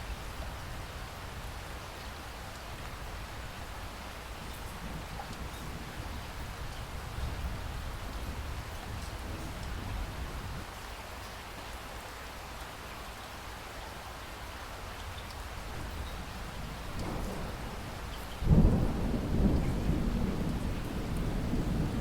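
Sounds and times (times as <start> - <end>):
rain falling: 0.0 - 22.0
thunderclap with rumble: 15.8 - 22.0.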